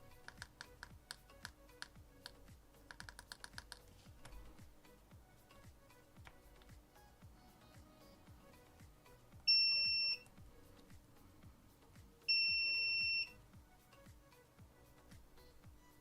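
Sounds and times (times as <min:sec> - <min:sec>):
multimeter continuity beep: 0:09.5 - 0:10.3, 0:12.3 - 0:13.4.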